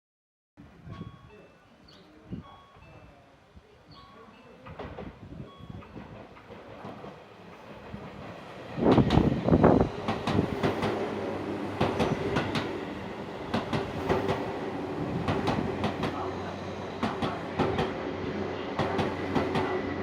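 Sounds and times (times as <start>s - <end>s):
train rumbling: 4.6s - 20.0s
train rushing past: 5.9s - 20.0s.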